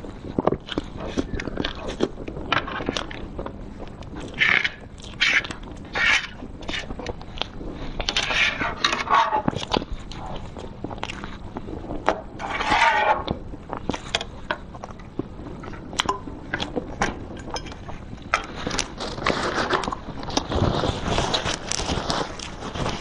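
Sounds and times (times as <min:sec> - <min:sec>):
wet chewing: 0:00.1 - 0:12.6, 0:13.2 - 0:23.0
metal spoon scraping paper tray: 0:04.4 - 0:07.0, 0:08.0 - 0:09.7, 0:12.4 - 0:13.3.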